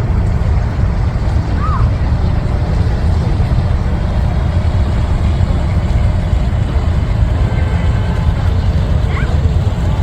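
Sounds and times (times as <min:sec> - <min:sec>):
low street rumble: 0:00.0 - 0:10.0.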